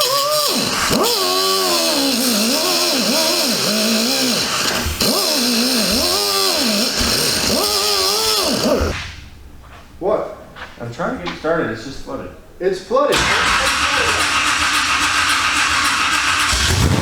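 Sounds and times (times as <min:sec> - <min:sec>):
car engine cranking on starter: 0:00.0 - 0:09.0, 0:13.1 - 0:17.0.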